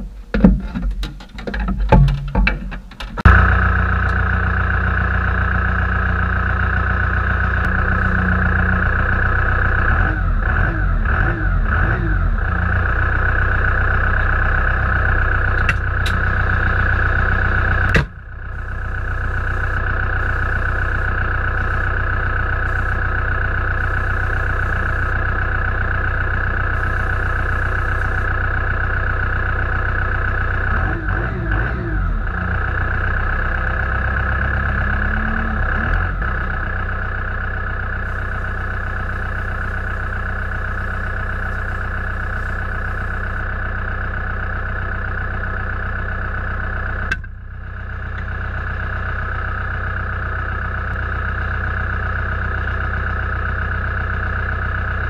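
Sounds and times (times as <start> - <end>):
tractor engine droning: 0.0 - 55.0.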